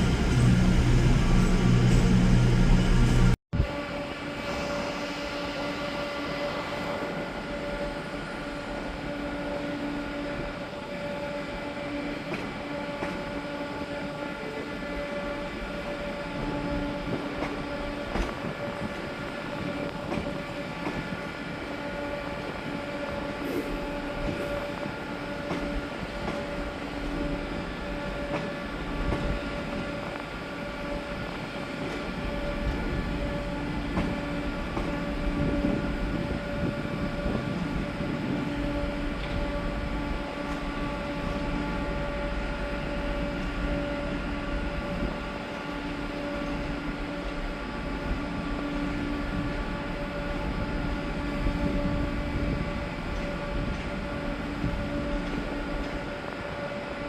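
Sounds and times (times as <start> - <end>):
train running with mechanical hum: 0.0 - 57.0.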